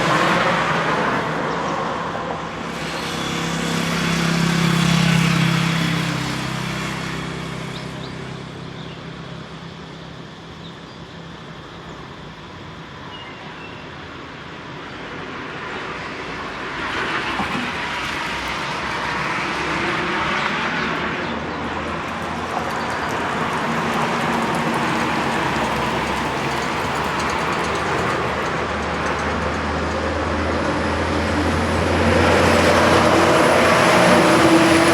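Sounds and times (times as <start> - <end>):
road traffic passing: 0.0 - 34.9.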